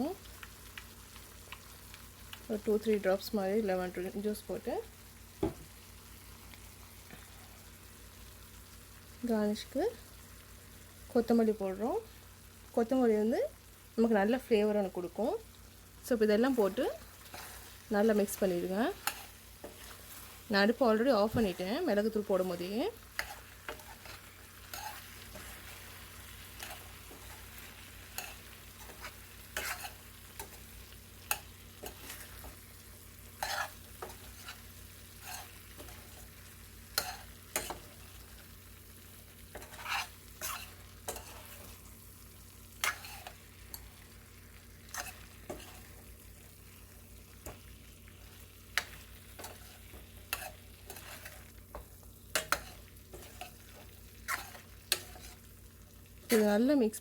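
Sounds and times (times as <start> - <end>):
spoon scraping food in a pan: 16.5 - 56.6.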